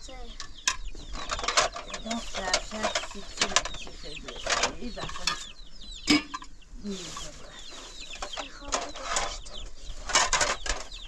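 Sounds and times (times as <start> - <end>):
chickens clucking: 0.0 - 11.0
chicks peeping: 0.0 - 11.0.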